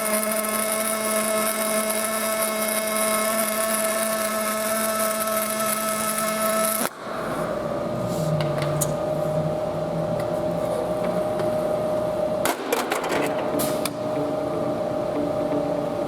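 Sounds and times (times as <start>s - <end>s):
sharp pops of welding: 0.0s - 7.1s
welding arc crackling hiss: 0.0s - 9.0s.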